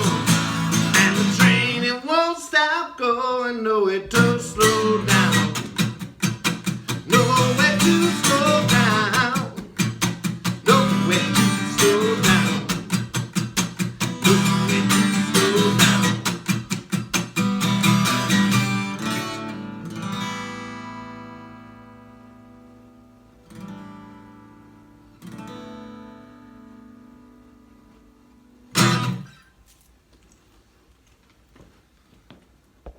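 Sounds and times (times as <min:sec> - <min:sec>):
acoustic guitar strumming: 0:00.0 - 0:02.7, 0:04.0 - 0:29.6
person singing: 0:00.0 - 0:05.8, 0:06.9 - 0:09.8, 0:10.6 - 0:12.9, 0:14.2 - 0:16.3.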